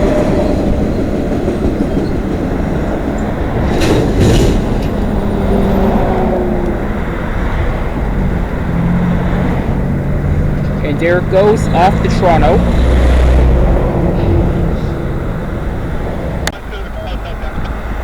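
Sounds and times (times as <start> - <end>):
train wheels clattering: 0.0 - 8.6
freight train rolling past: 0.0 - 18.0.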